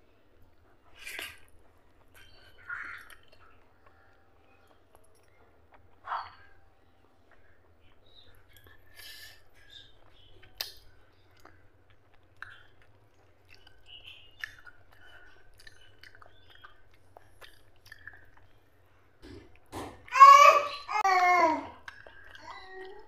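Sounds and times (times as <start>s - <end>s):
wet chewing and smacking: 0.5s - 19.7s, 21.8s - 23.0s
lip and tongue clicks: 1.0s - 4.0s, 10.0s - 18.5s, 21.8s - 23.0s.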